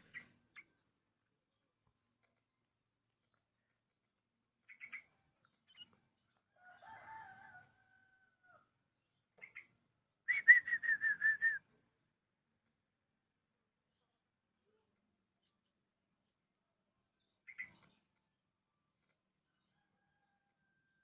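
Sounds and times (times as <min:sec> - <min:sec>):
bird chirping: 0:00.0 - 0:07.3, 0:09.0 - 0:12.0, 0:17.0 - 0:19.3.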